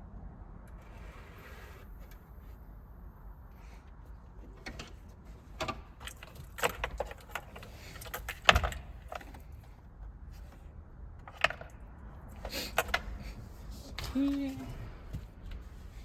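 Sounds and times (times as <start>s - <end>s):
clicks and rattles of tools: 4.5s - 9.8s.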